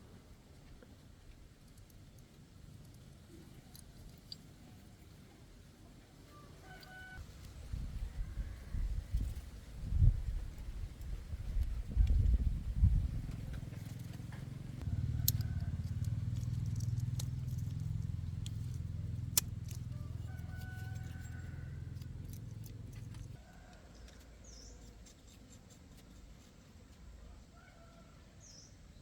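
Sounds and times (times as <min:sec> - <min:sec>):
engine humming: 0:08.9 - 0:23.8.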